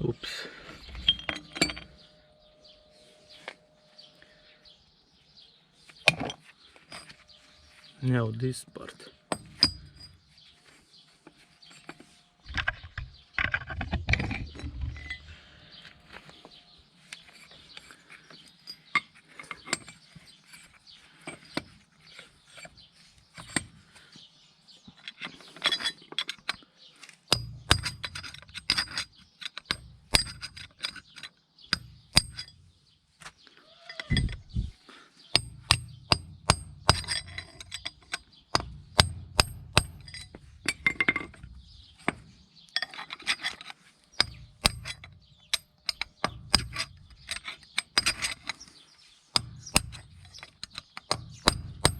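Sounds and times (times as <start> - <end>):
metal clinks: 0.9 - 2.3, 9.3 - 10.3, 27.3 - 32.7, 33.8 - 34.6, 35.3 - 48.8
hammer tapping on steel: 35.4 - 37.9, 38.6 - 40.2.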